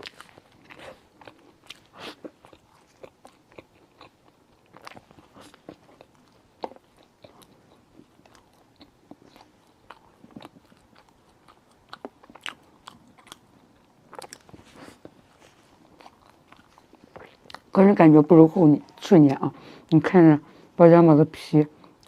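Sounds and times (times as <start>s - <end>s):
wet chewing sounds: 0.0s - 17.8s.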